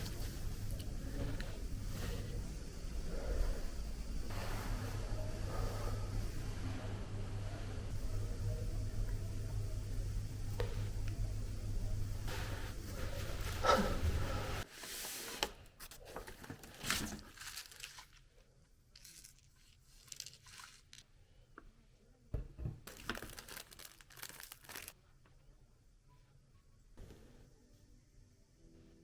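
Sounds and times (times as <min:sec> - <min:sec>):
wrappers crinkling and tearing: 0:16.6 - 0:18.3, 0:18.9 - 0:21.0, 0:22.9 - 0:25.0.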